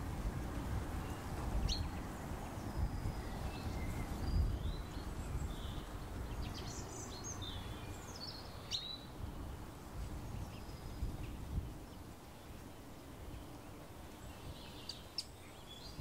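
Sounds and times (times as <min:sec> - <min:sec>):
birds chirping and whistling: 0:01.0 - 0:09.0.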